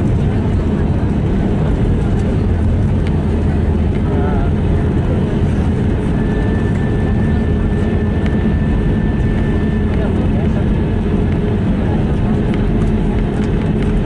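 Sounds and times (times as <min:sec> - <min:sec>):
aircraft cabin rumble: 0:00.0 - 0:14.0.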